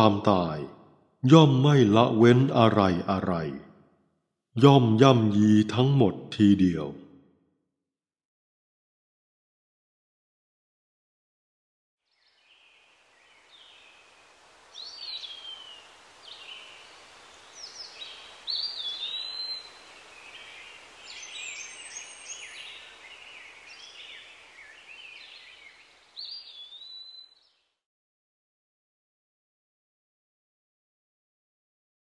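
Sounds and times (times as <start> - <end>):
background hiss: 12.1 - 27.6
birdsong: 12.1 - 27.8.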